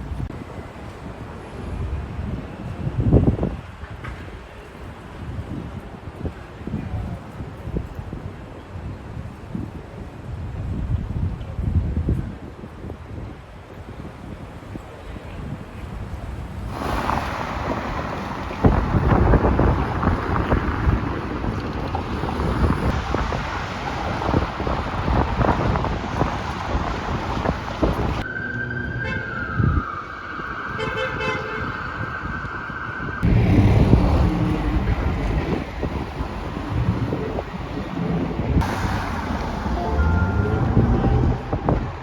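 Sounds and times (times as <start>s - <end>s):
city street traffic: 0.0s - 42.0s
wind rumbling on microphone: 0.0s - 42.0s
steady horn-like tone: 39.6s - 42.0s.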